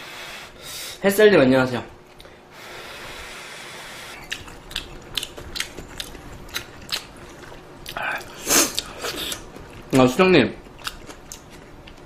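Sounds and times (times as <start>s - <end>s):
wet mouth chewing clicks: 4.2s - 10.0s, 10.6s - 12.0s.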